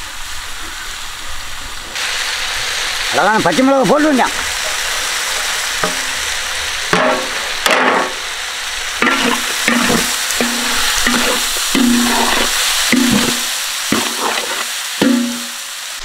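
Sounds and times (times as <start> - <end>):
masala sizzling in oil: 0.0 - 16.0
utensil scraping a pan: 9.0 - 15.6.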